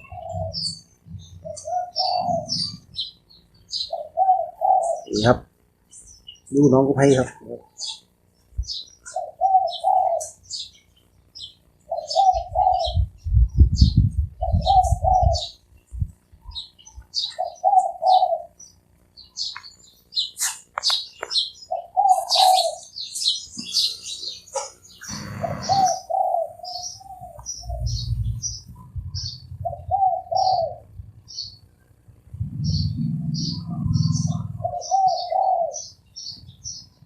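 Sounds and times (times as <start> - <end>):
dove cooing: 0.0 - 3.1, 3.7 - 5.5, 8.6 - 10.7, 11.9 - 15.6, 16.5 - 18.6, 21.7 - 31.5, 32.3 - 36.0
small birds chirping: 0.0 - 37.0.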